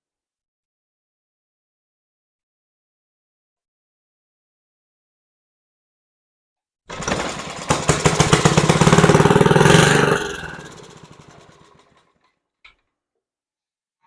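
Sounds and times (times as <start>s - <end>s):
small mower engine starting and dying: 6.9s - 12.2s.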